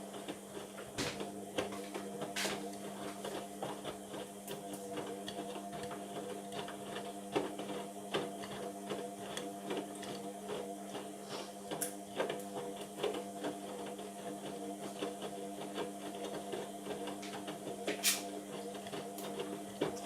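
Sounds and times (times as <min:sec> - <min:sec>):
washing machine motor hum: 0:00.0 - 0:20.0.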